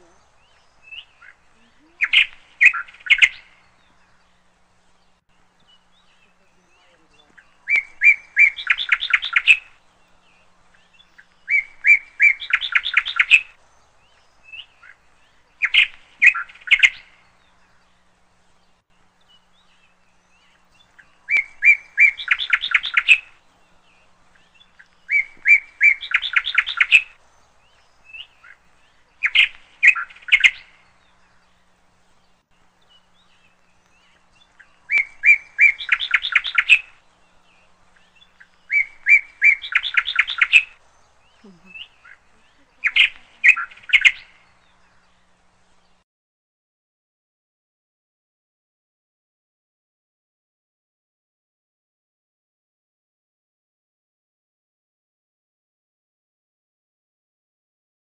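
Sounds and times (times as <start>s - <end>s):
songbird singing with trill: 0.0s - 46.0s.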